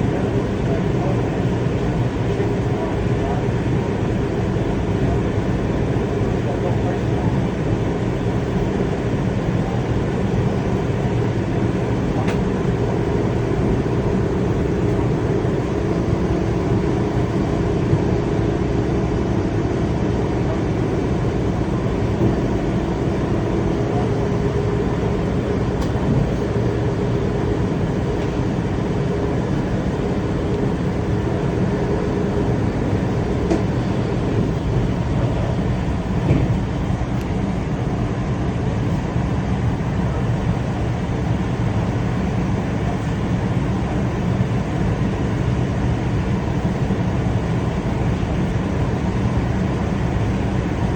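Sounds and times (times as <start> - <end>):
low whine: 0.0 - 50.9
train rumbling: 4.9 - 44.9.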